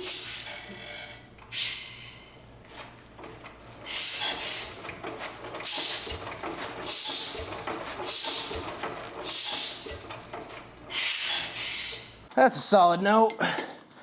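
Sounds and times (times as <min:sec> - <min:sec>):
hissing puff of air: 0:00.0 - 0:02.4, 0:03.8 - 0:04.8, 0:05.6 - 0:10.0, 0:10.9 - 0:12.2
low thump of engine turning: 0:02.6 - 0:11.6.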